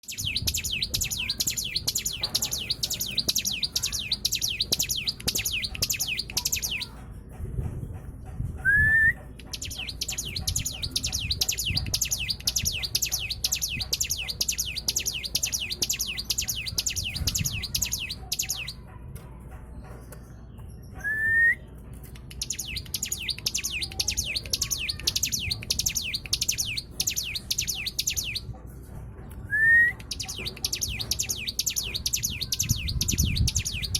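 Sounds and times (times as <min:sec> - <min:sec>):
songbird rapid high chirping: 0:00.0 - 0:07.0, 0:09.4 - 0:18.8, 0:22.1 - 0:28.5, 0:29.9 - 0:33.9.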